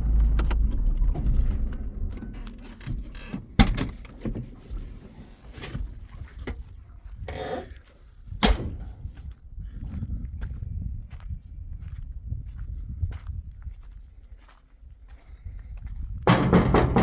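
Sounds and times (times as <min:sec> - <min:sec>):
door creak: 0:00.0 - 0:04.8.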